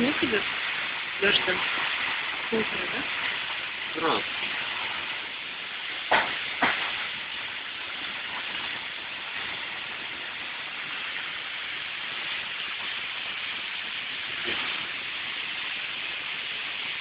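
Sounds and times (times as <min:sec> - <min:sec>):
heavy rain pouring: 0:00.0 - 0:17.0
sharp knocks: 0:06.1 - 0:06.8.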